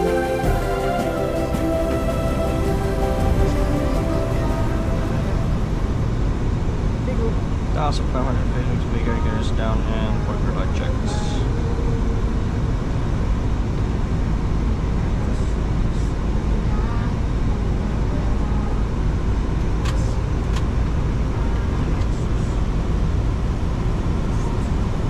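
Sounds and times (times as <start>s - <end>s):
cockpit airflow roar: 0.0s - 25.0s.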